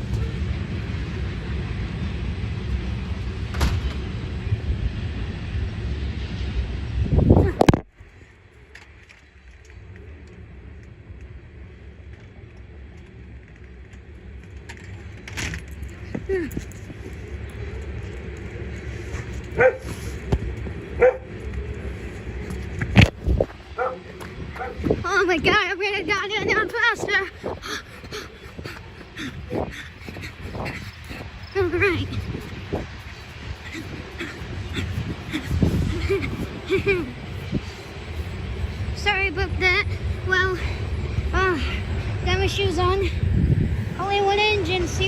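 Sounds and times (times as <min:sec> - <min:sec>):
freight train rumbling past: 0:00.0 - 0:09.4, 0:10.4 - 0:45.0
dog barking: 0:19.6 - 0:19.9, 0:21.0 - 0:21.3, 0:23.8 - 0:24.8.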